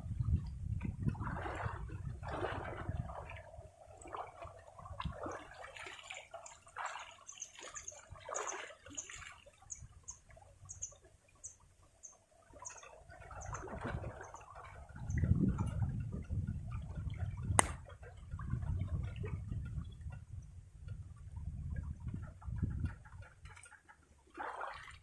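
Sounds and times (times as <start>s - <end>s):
river water splashing: 1.1s - 15.2s, 17.6s - 18.2s, 23.1s - 25.0s.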